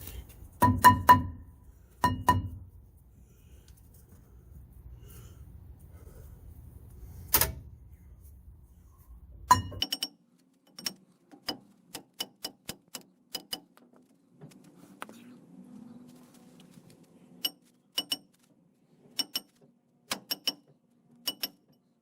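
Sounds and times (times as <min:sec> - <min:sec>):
hammer striking metal: 0:00.6 - 0:02.6, 0:09.5 - 0:10.1.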